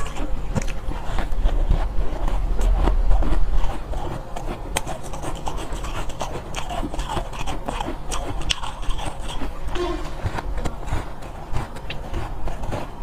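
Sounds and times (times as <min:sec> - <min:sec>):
ice being chewed: 0:00.0 - 0:13.0
low rumble: 0:00.4 - 0:04.4.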